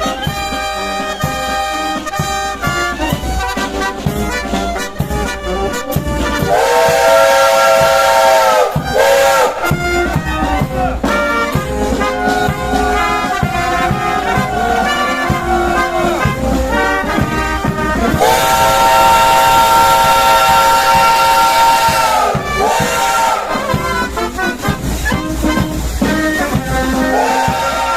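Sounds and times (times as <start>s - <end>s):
brass music: 0.0s - 27.9s
steam locomotive whistle: 0.0s - 27.9s
steam hiss: 6.5s - 27.9s.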